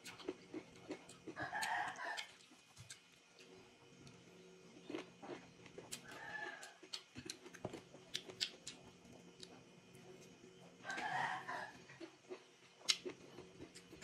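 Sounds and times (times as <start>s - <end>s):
wet eating sounds: 4.8s - 9.7s, 11.9s - 14.0s.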